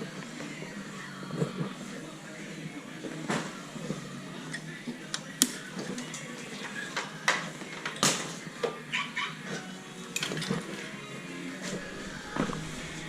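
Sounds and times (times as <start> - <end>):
low steady hum: 11.7 - 13.0.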